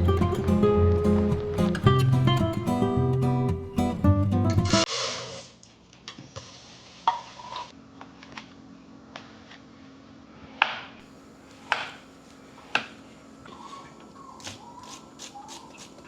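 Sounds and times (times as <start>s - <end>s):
faint hum: 7.8s - 16.0s.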